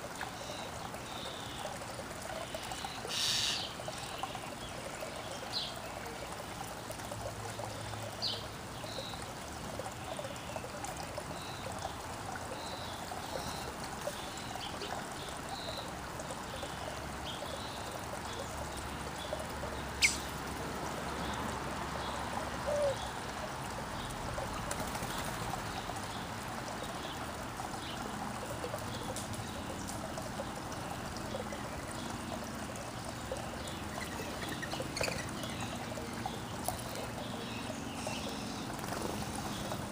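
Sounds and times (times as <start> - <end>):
water trickling: 0.0 - 39.9
small birds chirping: 2.4 - 6.3, 16.5 - 20.4, 31.2 - 39.9.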